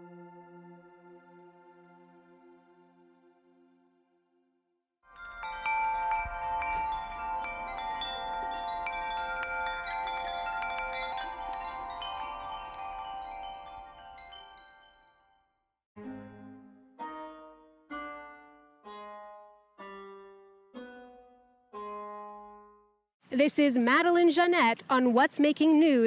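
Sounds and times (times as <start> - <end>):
bell-like chime tones: 5.1 - 15.4.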